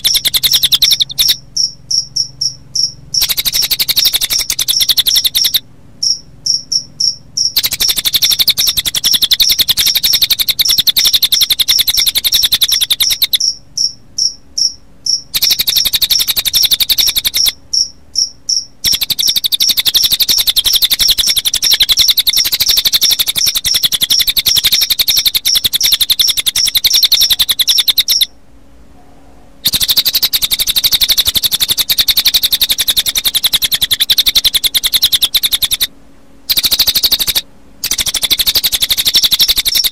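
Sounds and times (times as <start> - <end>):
high-pitched bird trill: 0.0 - 28.3, 29.6 - 35.9, 36.5 - 39.9
sharp high chirping notes: 0.0 - 28.3.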